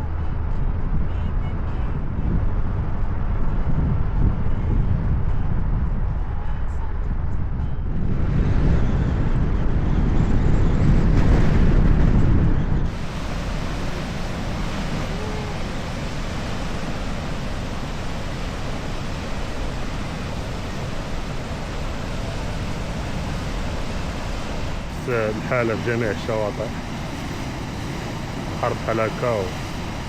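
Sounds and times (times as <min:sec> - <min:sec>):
surf breaking: 0:10.9 - 0:30.0
waves washing: 0:10.9 - 0:30.0.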